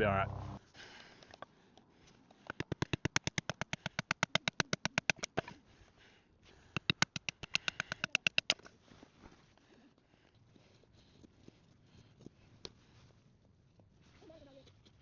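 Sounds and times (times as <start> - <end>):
rapid clicking: 2.5 - 5.5, 6.8 - 8.6.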